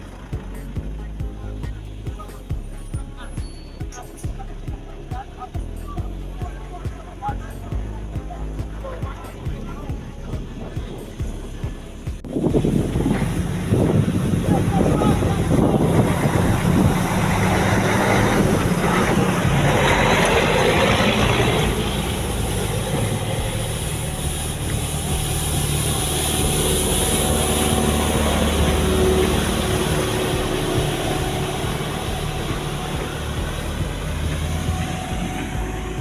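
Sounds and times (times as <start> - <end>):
heavy machinery engines humming: 0.0 - 36.0
rush of noise: 0.0 - 36.0.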